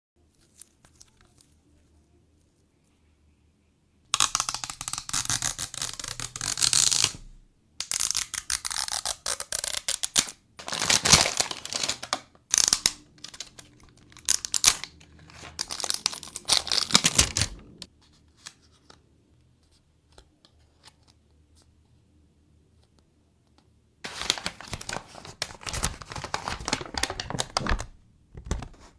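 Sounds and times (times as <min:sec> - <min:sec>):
plastic packaging tearing and crinkling: 0:04.2 - 0:17.9, 0:24.1 - 0:28.0.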